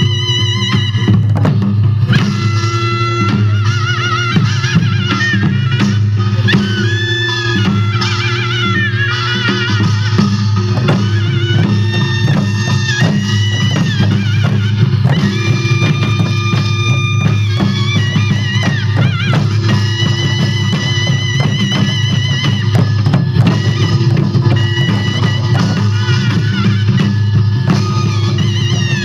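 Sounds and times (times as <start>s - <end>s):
rapid drumming: 0.0s - 29.0s
wind instrument melody: 0.0s - 29.0s.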